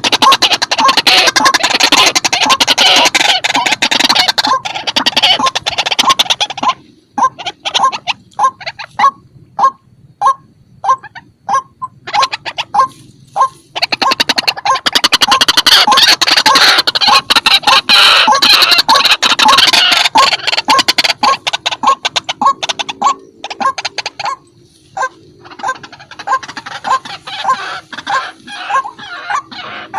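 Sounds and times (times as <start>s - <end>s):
waterhen harsh call: 0.0s - 29.9s
rapid stuttering chatter: 13.6s - 24.4s, 25.0s - 29.9s.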